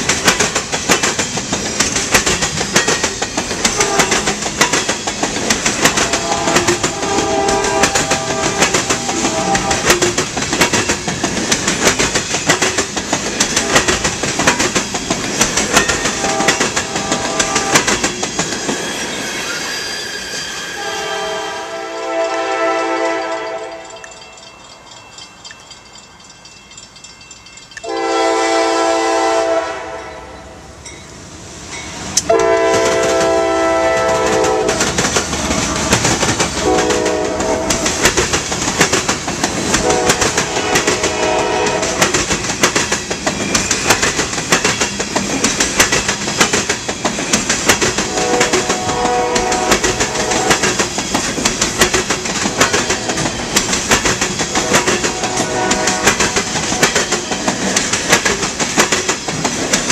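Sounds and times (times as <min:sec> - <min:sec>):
train wheels clacking on rail joints: 0:00.0 - 0:18.9, 0:31.8 - 0:59.9
locomotive air horn blasts: 0:03.8 - 0:04.3, 0:05.9 - 0:10.0, 0:16.1 - 0:17.8, 0:20.8 - 0:24.0, 0:27.8 - 0:30.6, 0:32.2 - 0:34.9, 0:35.6 - 0:37.9, 0:39.8 - 0:42.1, 0:48.0 - 0:50.7, 0:54.6 - 0:57.0.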